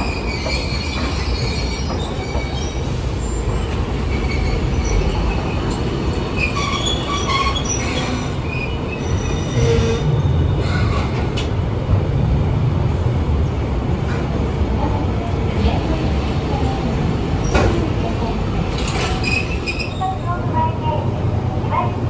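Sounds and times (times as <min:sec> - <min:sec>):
streetcar wheels rumbling on rail: 0:00.0 - 0:22.0
high wheel squeals: 0:06.3 - 0:11.2, 0:19.1 - 0:20.3.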